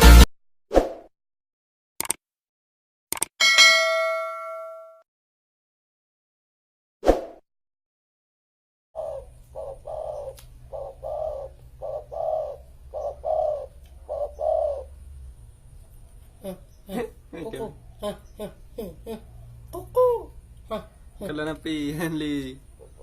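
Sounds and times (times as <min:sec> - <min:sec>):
dove cooing: 0:09.0 - 0:15.0, 0:16.3 - 0:21.4.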